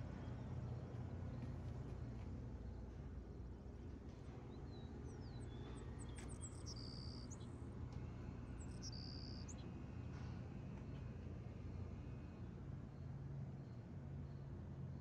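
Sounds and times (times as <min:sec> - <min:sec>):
low steady hum: 0:00.0 - 0:15.0
faint bird-like chirps and whistles: 0:04.5 - 0:07.5, 0:08.6 - 0:09.7.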